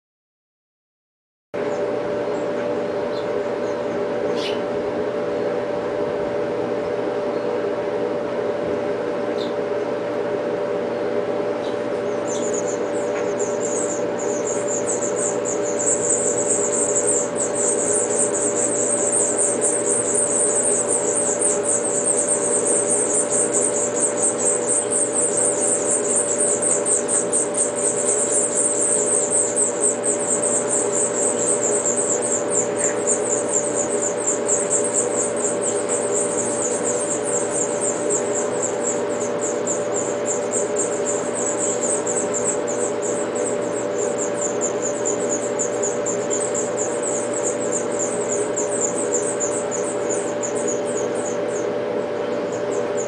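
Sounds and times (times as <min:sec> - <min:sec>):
nestlings chirping rapidly: 0:01.7 - 0:04.8, 0:11.6 - 0:53.0.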